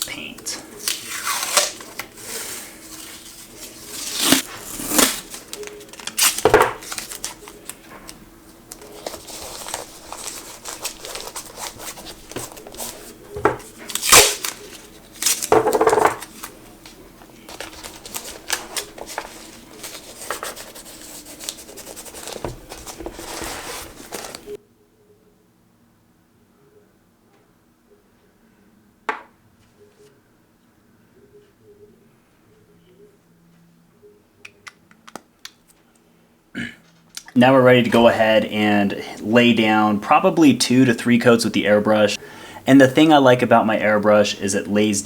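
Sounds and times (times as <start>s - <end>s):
tape pulled off roll and torn: 0.8s - 2.2s, 3.9s - 7.8s, 13.9s - 15.5s.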